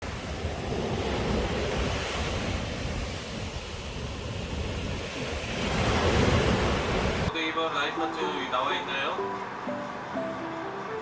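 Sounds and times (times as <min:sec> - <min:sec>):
wind buffeting microphone: 0:00.0 - 0:07.3
rushing wind and water: 0:00.0 - 0:11.0.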